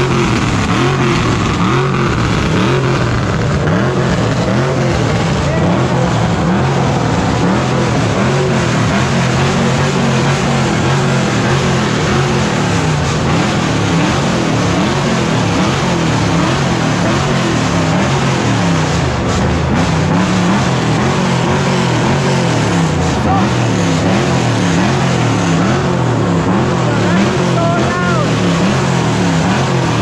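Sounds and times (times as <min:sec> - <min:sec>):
car engines revving: 0:00.0 - 0:30.0
steady rushing noise: 0:00.0 - 0:30.0.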